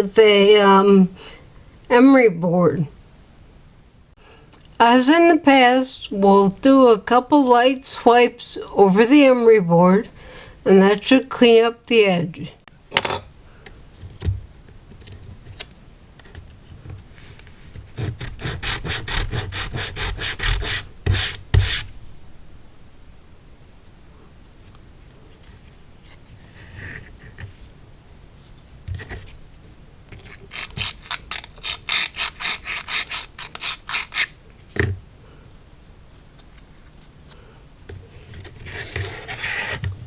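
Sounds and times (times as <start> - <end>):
wood rubbed on emery board: 18.0 - 21.9.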